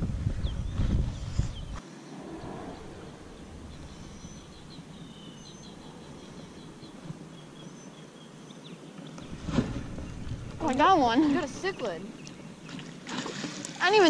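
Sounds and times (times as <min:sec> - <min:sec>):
high bird chirps: 0:01.5 - 0:08.7.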